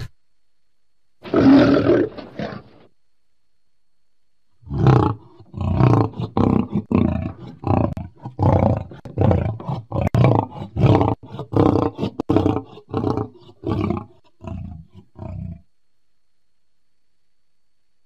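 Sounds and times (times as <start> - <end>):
lion roaring: 1.2 - 2.9, 4.6 - 15.7.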